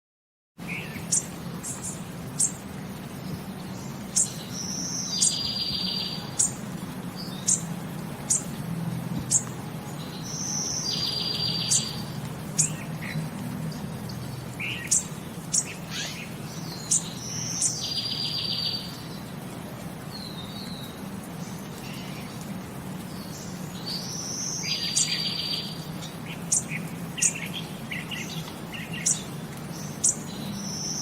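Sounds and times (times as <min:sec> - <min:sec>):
small bird chirping: 0:03.7 - 0:06.6, 0:14.6 - 0:19.0.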